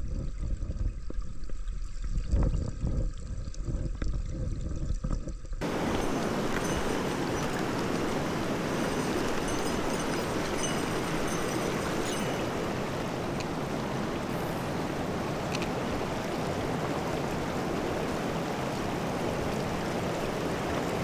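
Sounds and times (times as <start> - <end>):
stream rushing: 5.6 - 21.0.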